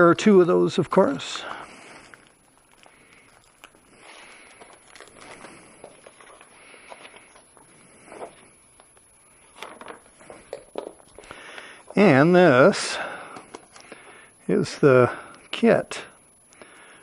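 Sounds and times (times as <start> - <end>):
packaging rustling: 1.0 - 12.0.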